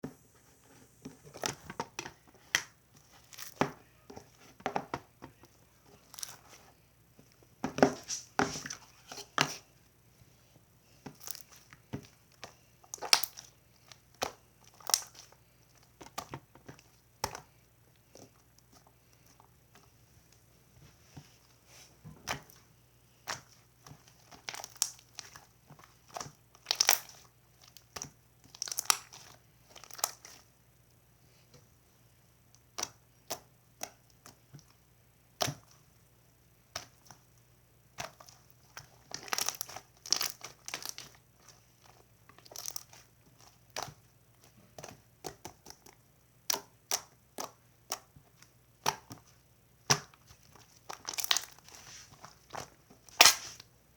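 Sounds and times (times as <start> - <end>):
crinkling and crunching: 23.3 - 30.5, 38.0 - 53.7.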